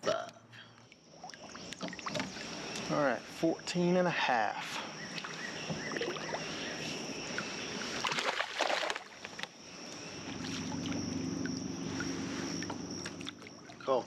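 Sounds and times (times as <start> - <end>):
water on a boat: 0.0 - 14.0
low steady hum: 7.4 - 14.0
water splash rush: 7.8 - 9.1.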